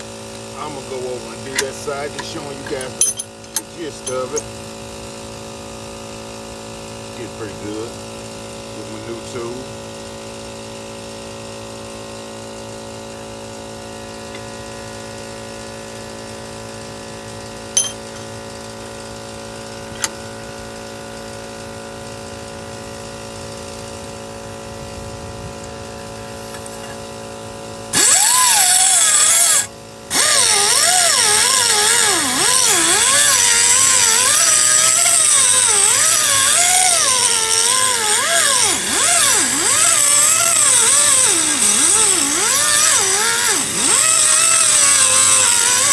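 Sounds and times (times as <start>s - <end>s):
harsh grinding of steel blade: 0.6s - 4.6s, 17.8s - 18.2s, 27.9s - 45.9s
electric power tool running: 25.0s - 45.9s.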